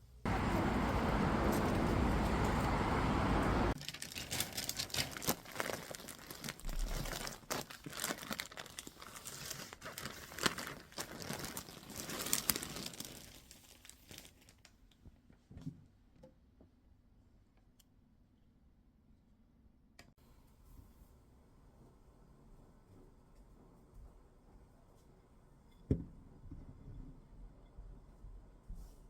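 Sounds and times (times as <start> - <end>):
crinkling and rustling: 0.3 - 15.8.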